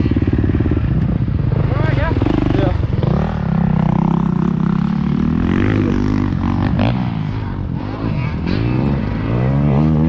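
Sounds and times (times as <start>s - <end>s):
motocross bike engine revving: 0.0s - 10.0s.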